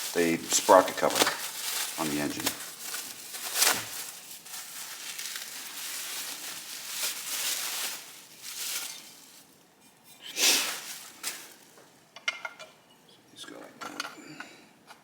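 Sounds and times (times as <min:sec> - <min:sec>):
packing material rustling: 0:00.0 - 0:09.6, 0:10.4 - 0:11.8.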